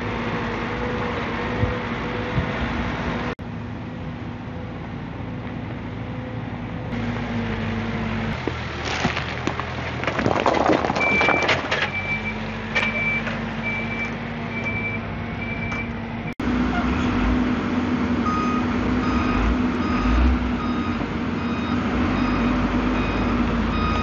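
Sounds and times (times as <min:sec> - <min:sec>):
diesel engine running: 0:00.0 - 0:24.0
clattering and scraping: 0:08.4 - 0:13.5
reversing alarm beeping: 0:11.0 - 0:15.9, 0:18.3 - 0:24.0.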